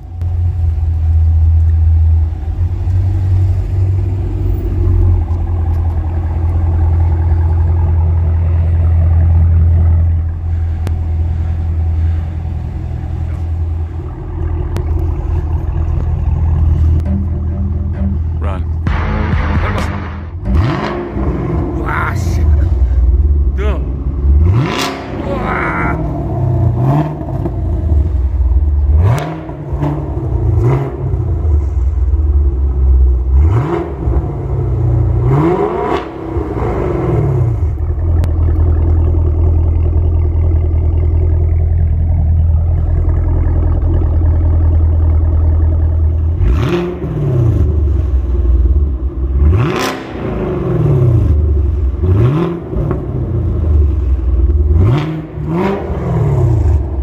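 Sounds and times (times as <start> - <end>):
car engine idling: 0.0 - 57.0
car engine revving: 0.0 - 57.0.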